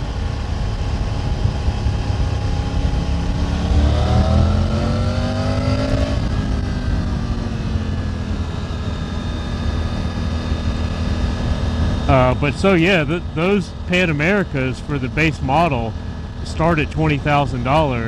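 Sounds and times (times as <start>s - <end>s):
wind rumble: 0.0s - 17.7s
motorcycle engine revving: 1.0s - 14.7s.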